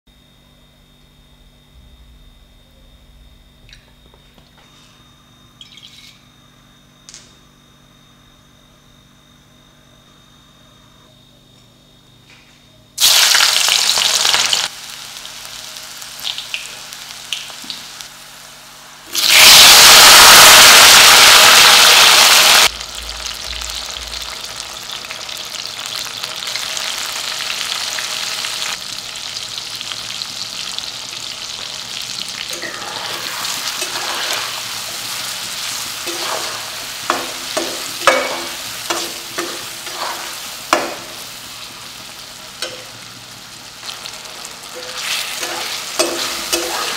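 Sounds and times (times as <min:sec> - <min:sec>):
hot oil sizzling in a pan: 0:13.0 - 0:46.9.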